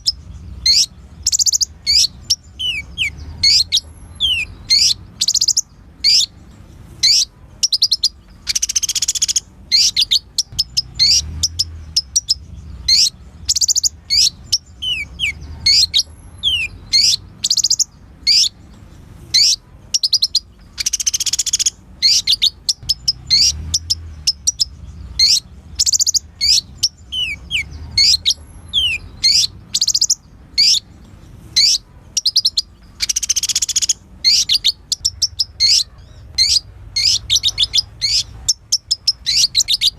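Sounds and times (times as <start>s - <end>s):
buzzy bird trill: 0.0s - 39.9s
sunbird singing high chirps: 0.0s - 39.9s.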